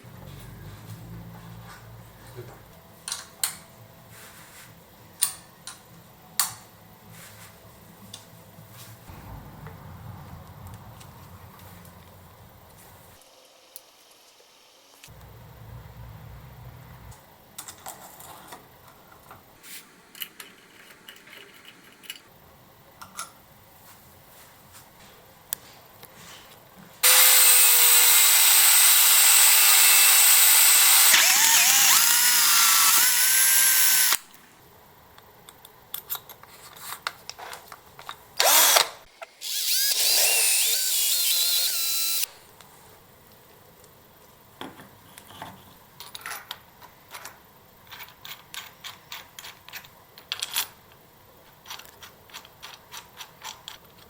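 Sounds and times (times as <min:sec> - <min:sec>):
power drill whining: 0:27.0 - 0:34.2, 0:38.4 - 0:42.3.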